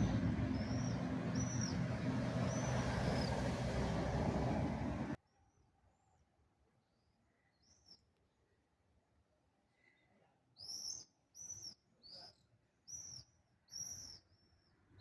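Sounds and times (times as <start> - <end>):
road traffic rumble: 0.0 - 5.2
small birds chirping: 0.0 - 5.2.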